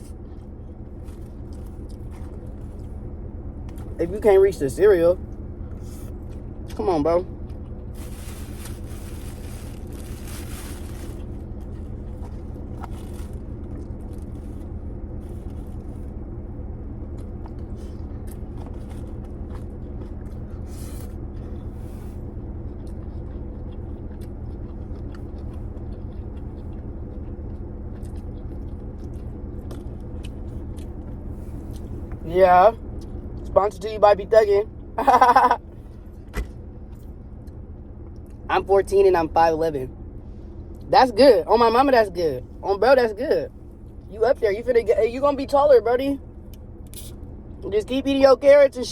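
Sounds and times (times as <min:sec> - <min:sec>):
person chewing and crunching: 0:00.0 - 0:04.0, 0:05.4 - 0:16.2, 0:17.0 - 0:33.8
steady low hum: 0:00.0 - 0:48.9.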